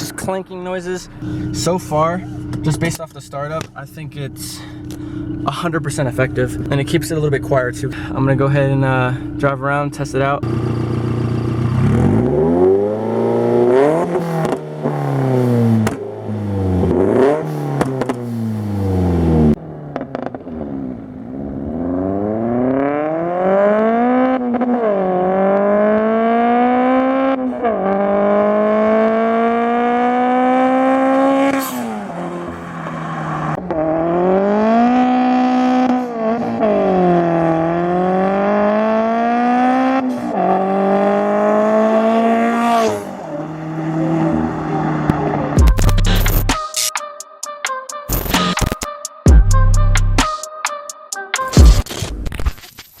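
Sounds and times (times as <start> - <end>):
car engine revving through gears: 10.4 - 46.6.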